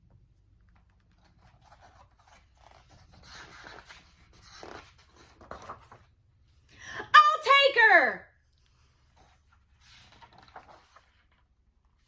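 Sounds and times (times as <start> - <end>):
paper page turning: 0.6 - 6.2, 8.6 - 11.6.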